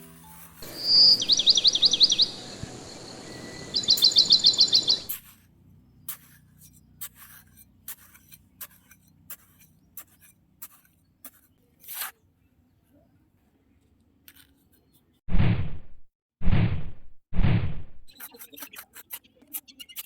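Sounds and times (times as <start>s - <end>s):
scrape: 0.0s - 0.7s, 5.1s - 13.0s, 14.3s - 15.2s, 18.1s - 19.6s
outdoor background noise: 0.0s - 20.0s
bird trilling: 0.6s - 5.1s.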